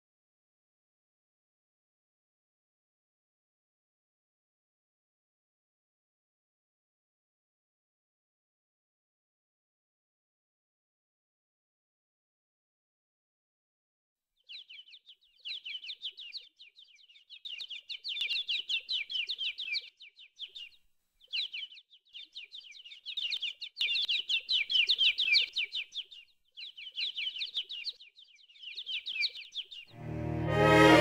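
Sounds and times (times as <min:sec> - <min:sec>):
small birds chirping: 0:14.4 - 0:30.0.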